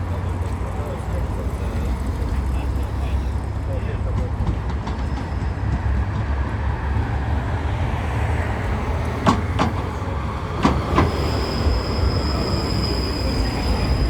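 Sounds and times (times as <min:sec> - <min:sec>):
tram rumbling along track: 0:00.0 - 0:14.0
wheels knocking on rail joints: 0:00.4 - 0:11.7.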